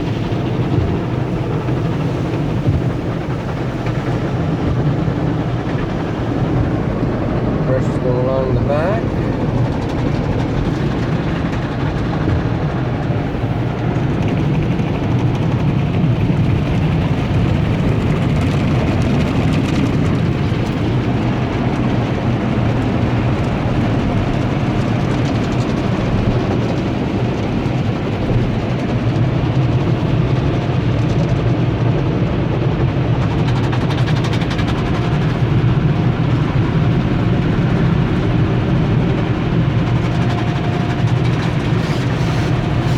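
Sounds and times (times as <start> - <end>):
steady low rumble: 0.0 - 42.9
car wash brushes swishing: 40.0 - 42.9.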